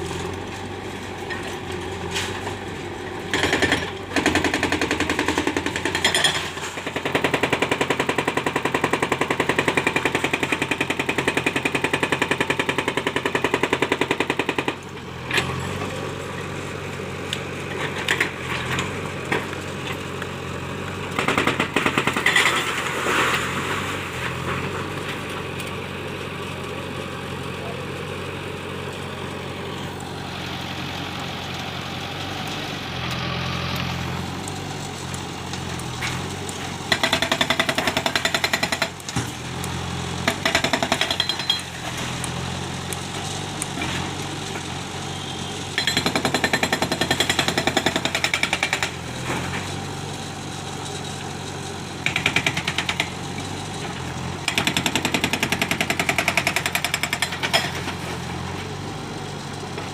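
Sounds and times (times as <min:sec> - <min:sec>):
heavy diesel machinery running: 0:00.0 - 0:59.9
fast jackhammer-like rattling: 0:03.3 - 0:14.7, 0:36.9 - 0:39.0, 0:54.5 - 0:57.6.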